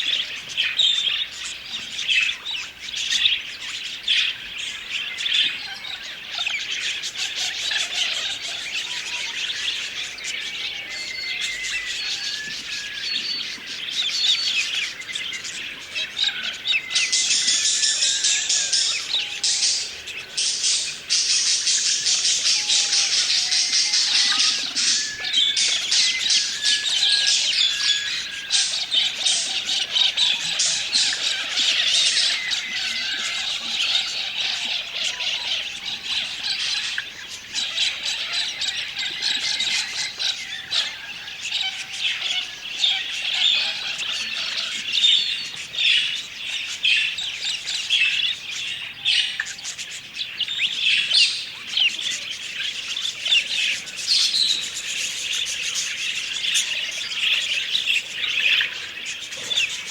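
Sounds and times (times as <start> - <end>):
budgerigars chirping and warbling: 0.0 - 59.9.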